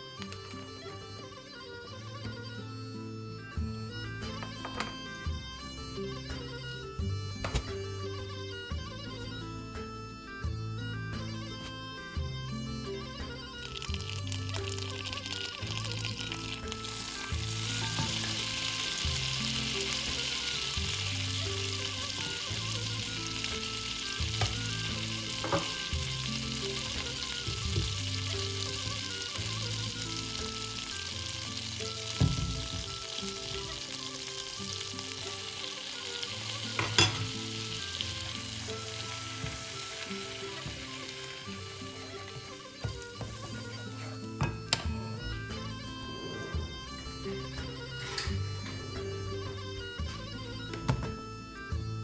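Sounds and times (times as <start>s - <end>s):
butter sizzling in a pan: 13.2s - 50.7s.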